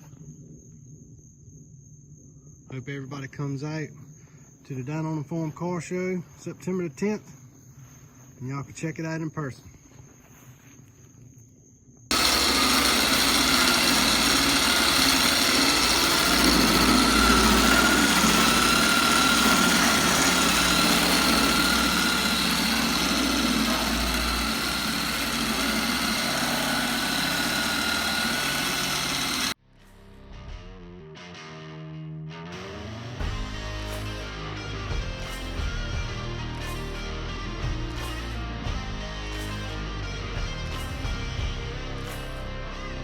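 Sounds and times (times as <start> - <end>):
engine running: 12.1 - 29.6
thin steady whine: 12.1 - 29.6.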